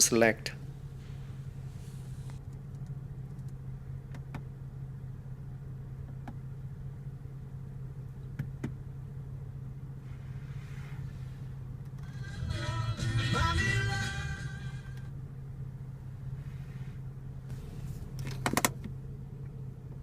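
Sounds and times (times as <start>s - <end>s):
car engine idling: 0.5s - 20.0s
faint clicks of cabin controls: 1.1s - 4.5s, 6.0s - 6.4s, 8.2s - 8.8s, 17.5s - 20.0s.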